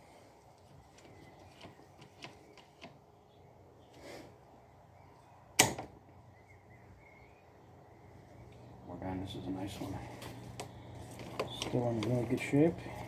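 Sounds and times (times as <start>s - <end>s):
sharp plastic snap: 5.6s - 6.0s.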